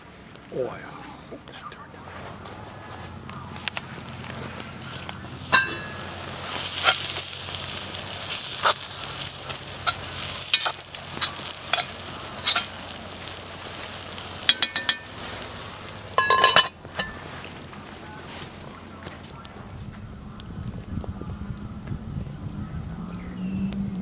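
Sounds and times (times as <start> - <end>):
food sizzling: 5.0 - 19.4
cooking utensil clicks and scrapes: 5.5 - 17.4
ringing metallic clinks: 14.5 - 15.1, 16.2 - 17.2.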